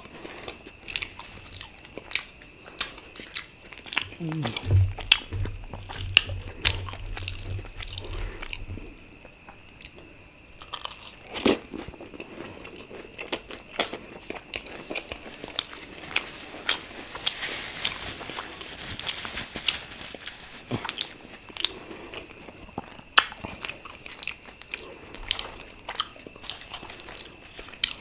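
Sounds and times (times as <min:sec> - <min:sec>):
chewing and biting: 0:20.8 - 0:28.0.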